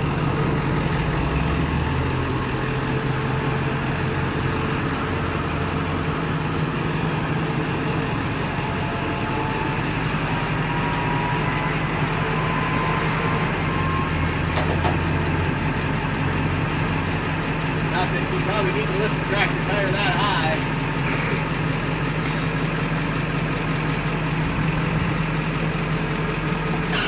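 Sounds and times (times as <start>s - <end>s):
truck engine running: 0.0s - 27.0s
faint hydraulic whine: 2.6s - 16.2s.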